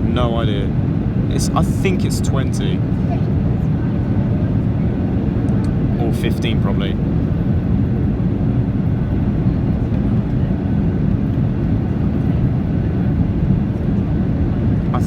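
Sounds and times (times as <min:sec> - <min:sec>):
low rumble of airflow and engines: 0:00.0 - 0:15.0.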